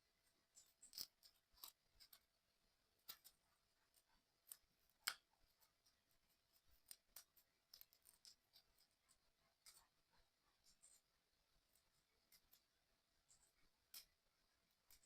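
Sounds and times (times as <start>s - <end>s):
small clicks of puzzle parts: 0.6s - 2.3s, 3.0s - 5.8s, 6.5s - 8.9s.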